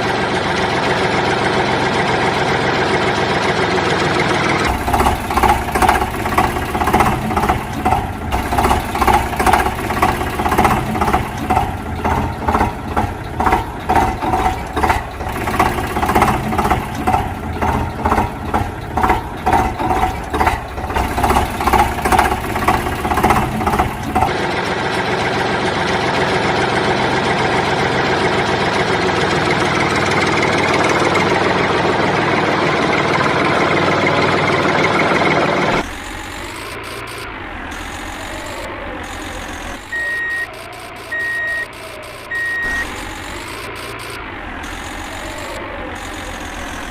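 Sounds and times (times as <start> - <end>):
tractor engine throbbing: 0.0 - 46.9.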